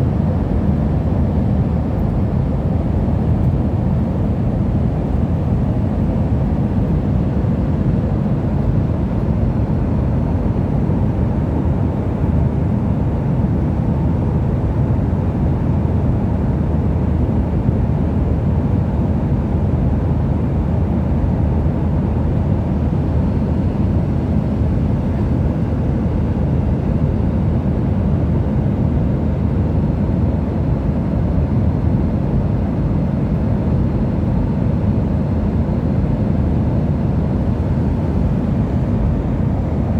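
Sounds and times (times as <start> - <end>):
airplane cabin rumble: 32.6 - 39.9.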